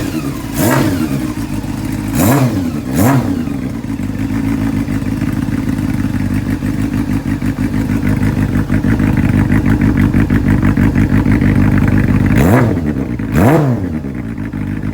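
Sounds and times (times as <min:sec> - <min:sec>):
motorcycle engine idling: 0:00.0 - 0:14.9.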